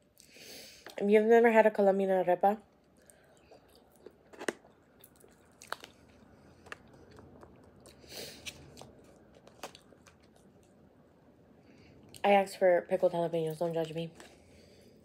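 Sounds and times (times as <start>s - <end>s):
quiet chewing: 2.7s - 10.9s.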